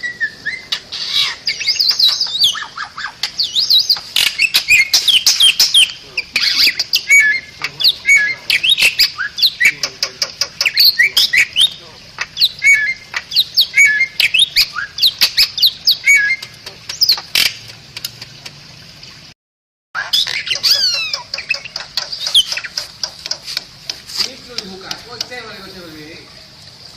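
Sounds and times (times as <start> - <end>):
bird singing clicks and whistles: 1.5 - 18.6, 20.2 - 24.0.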